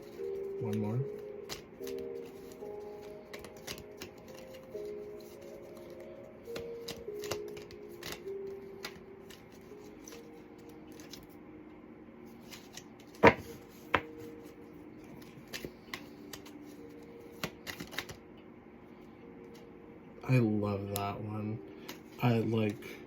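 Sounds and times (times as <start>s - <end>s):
cards shuffling and clicking: 0.0s - 11.4s, 12.3s - 18.2s, 21.8s - 22.8s
soft slow background music: 0.0s - 23.0s.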